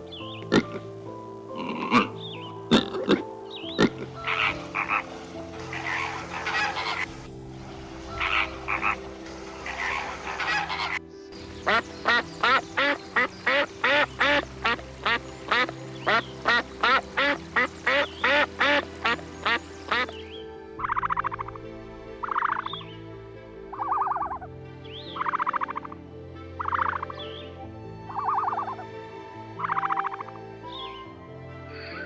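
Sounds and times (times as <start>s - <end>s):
frogs croaking: 1.6s - 32.0s
repeated animal call: 5.7s - 7.3s, 8.2s - 20.1s.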